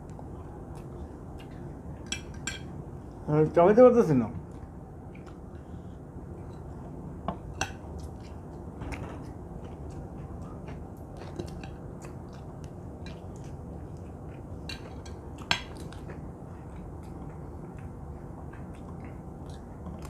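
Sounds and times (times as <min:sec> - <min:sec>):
steady low hum: 0:00.0 - 0:20.0
chewing: 0:00.1 - 0:02.7, 0:04.5 - 0:20.0.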